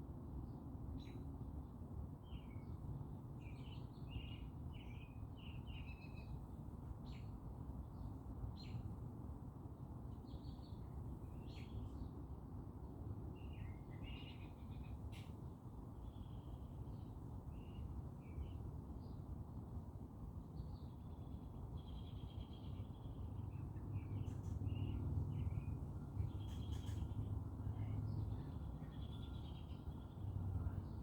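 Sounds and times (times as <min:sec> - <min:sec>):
small birds chirping: 0:13.4 - 0:15.4, 0:20.6 - 0:31.0.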